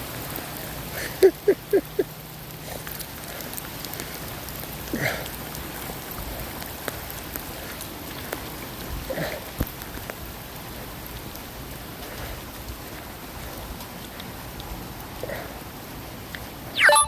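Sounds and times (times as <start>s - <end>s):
steady rain: 0.0s - 16.8s
sound falling in pitch: 16.8s - 17.0s.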